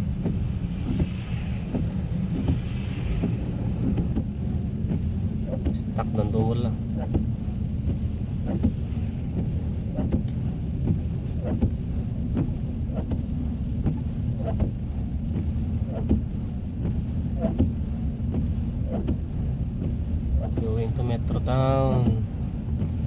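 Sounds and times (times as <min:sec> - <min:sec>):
car cabin rumble: 0:00.0 - 0:23.0
soft repeating knocks: 0:00.2 - 0:05.8.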